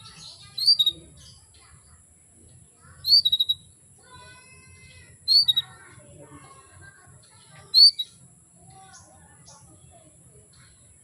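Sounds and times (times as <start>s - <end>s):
canary chirping call: 0.0s - 2.0s, 2.9s - 6.0s, 7.2s - 10.0s
faint bird twittering: 0.0s - 11.0s.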